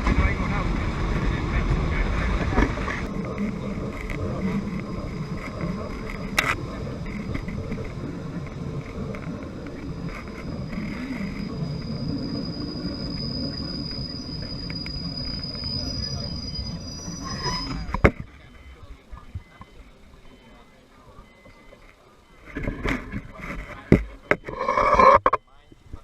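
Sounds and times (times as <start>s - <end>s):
train rumbling: 0.0s - 18.0s
thin high whine: 0.0s - 26.0s.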